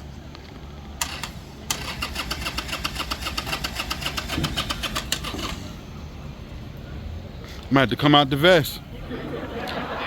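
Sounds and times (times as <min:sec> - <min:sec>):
motorcycle engine cranking: 0:01.0 - 0:05.8.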